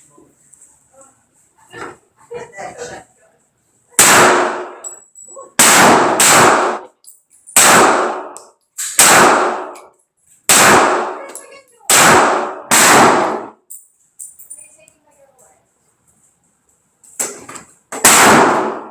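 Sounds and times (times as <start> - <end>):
handgun shots: 4.0 - 4.8, 5.6 - 6.9, 7.6 - 9.9, 10.5 - 11.2, 11.9 - 13.6, 17.2 - 18.9.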